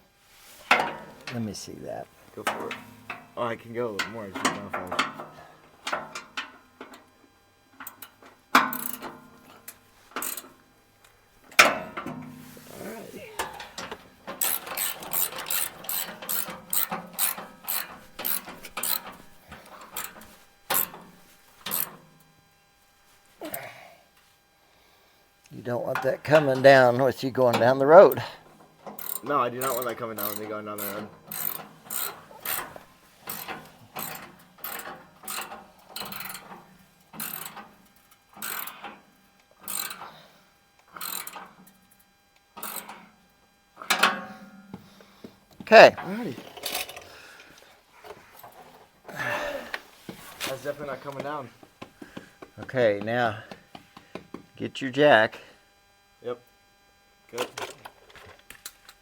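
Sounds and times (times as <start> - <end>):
socket ratchet clicking: 7.8 - 10.5, 13.8 - 21.0, 21.7 - 21.9, 28.9 - 36.6, 37.2 - 37.7, 38.4 - 38.9, 39.6 - 40.1, 40.9 - 41.5.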